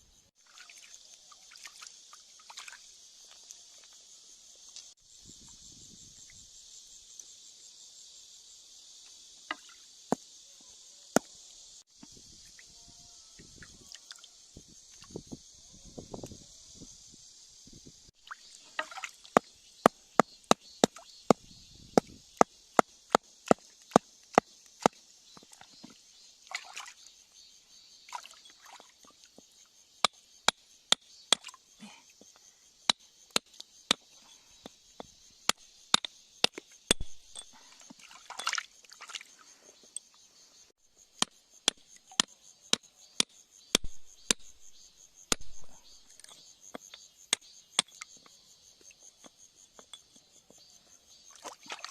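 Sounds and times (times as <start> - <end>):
high insect buzz: 0.0 - 51.9
hand tool tapping on rock: 32.9 - 37.5, 41.2 - 44.6, 45.3 - 48.3.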